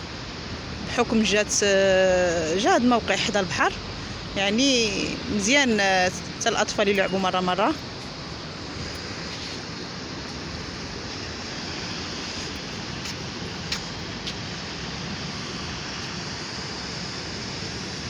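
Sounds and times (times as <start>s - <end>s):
sea surf: 0.0s - 18.0s
wind on microphone: 0.0s - 18.0s.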